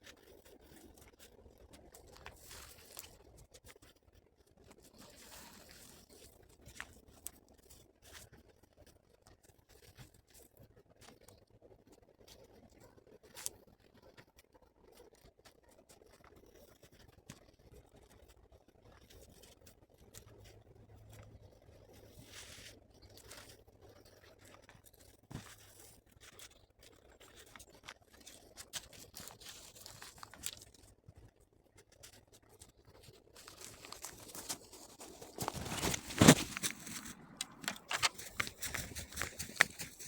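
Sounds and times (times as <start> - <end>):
crunches and scrapes: 0.0 - 3.9, 4.6 - 8.6, 18.9 - 40.0.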